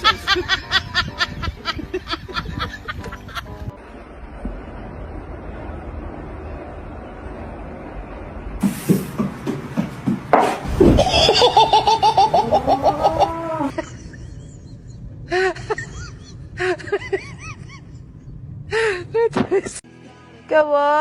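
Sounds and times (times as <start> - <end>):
person laughing hard: 0.0 - 3.6, 10.8 - 14.6.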